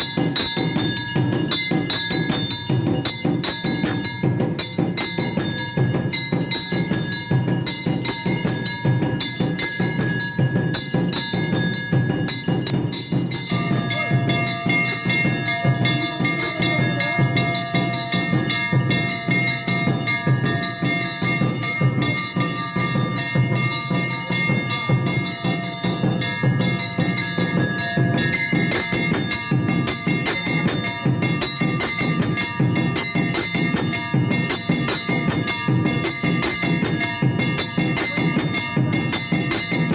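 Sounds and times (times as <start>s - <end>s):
fast steady percussion: 0.0s - 39.9s
temple bells ringing: 0.0s - 39.9s.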